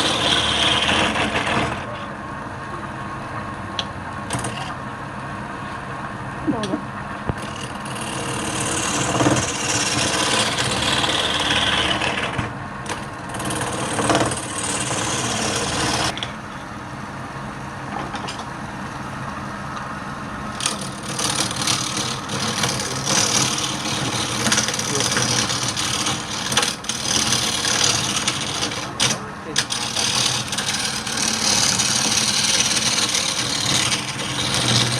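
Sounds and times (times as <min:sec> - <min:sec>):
lathe motor hum: 0:00.0 - 0:01.8, 0:07.3 - 0:34.9
tool cutting spinning wood: 0:00.0 - 0:01.9, 0:07.3 - 0:16.7, 0:20.4 - 0:34.9.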